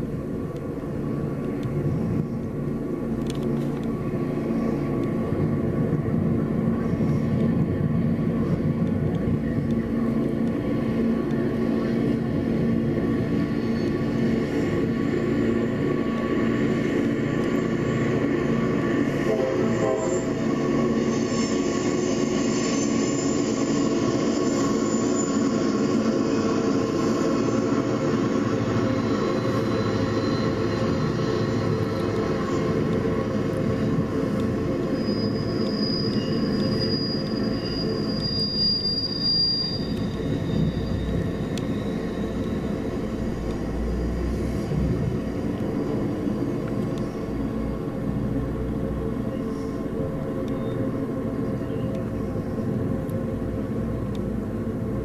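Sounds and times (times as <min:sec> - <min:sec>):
diesel locomotive engine drone: 0:00.0 - 0:55.0
wheel and rail noise: 0:00.0 - 0:55.0
wheel flanges squealing: 0:20.0 - 0:43.3.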